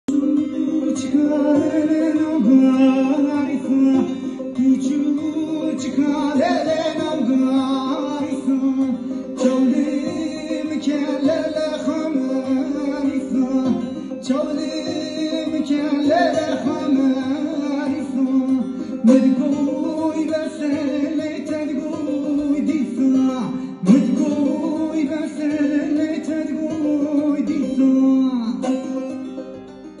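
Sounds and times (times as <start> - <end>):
plucked string instrument: 0.0 - 30.0
man singing: 0.1 - 29.4.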